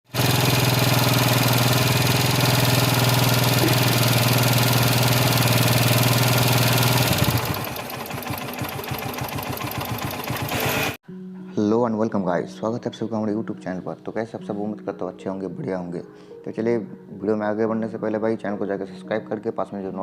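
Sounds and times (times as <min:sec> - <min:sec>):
motorcycle engine running: 0:00.1 - 0:11.0.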